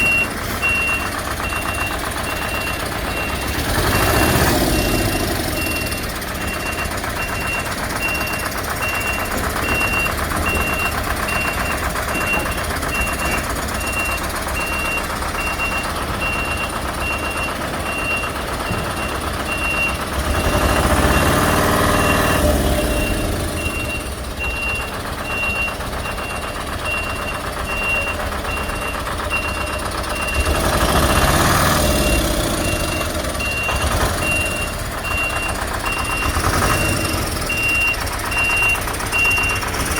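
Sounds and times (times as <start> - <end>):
diesel engine running: 0.0 - 39.9
reversing alarm beeping: 0.0 - 39.9.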